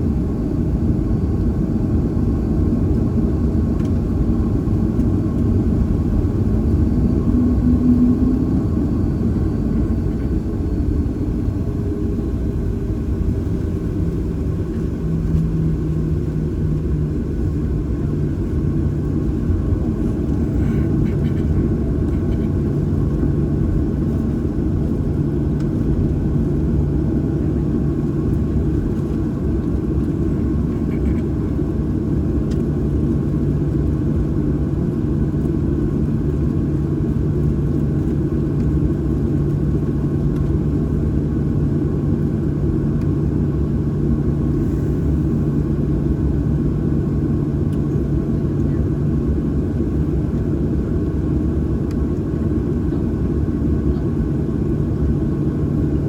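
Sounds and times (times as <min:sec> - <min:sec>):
jet engines idling: 0:00.0 - 0:34.5
airplane cabin rumble: 0:00.0 - 0:56.0.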